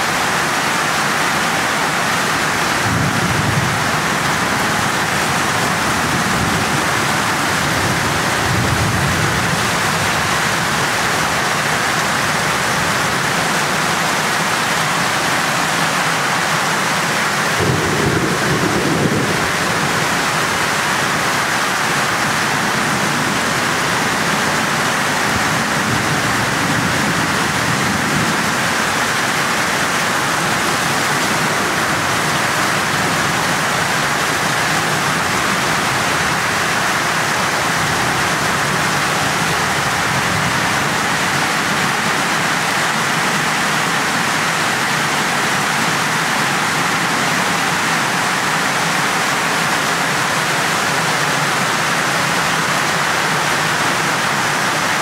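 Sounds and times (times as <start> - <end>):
torrential rain pouring: 0.0 - 55.0
thunder rumbling: 2.4 - 11.5, 17.5 - 34.4.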